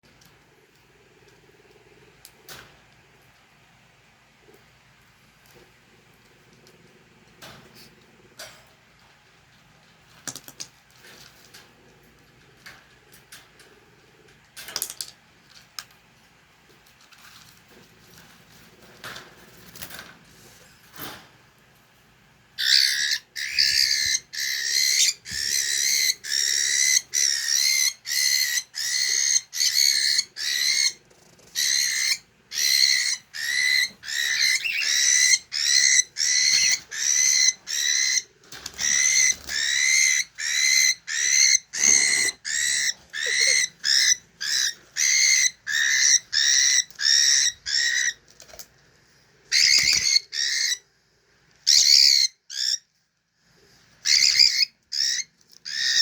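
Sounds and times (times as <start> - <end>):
cockatiel calling: 22.6 - 48.2, 49.5 - 50.8, 51.6 - 52.8, 54.0 - 56.0.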